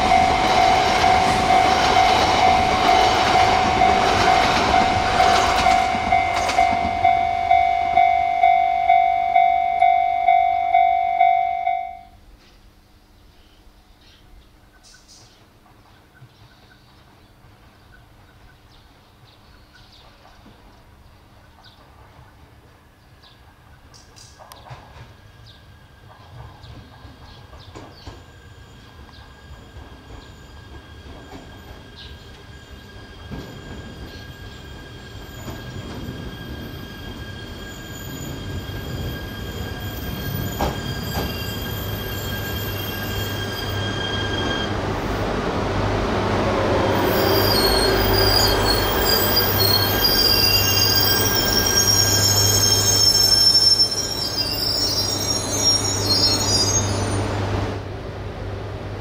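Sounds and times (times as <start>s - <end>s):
train approaching: 0.0s - 12.5s, 14.4s - 59.0s
high-pitched wheel squeal: 29.6s - 44.8s, 46.8s - 57.4s.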